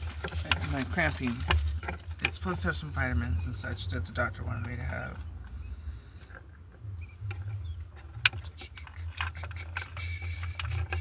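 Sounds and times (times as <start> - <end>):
objects clicking and rattling: 0.0 - 2.8, 7.5 - 11.0
steady low hum: 0.0 - 11.0.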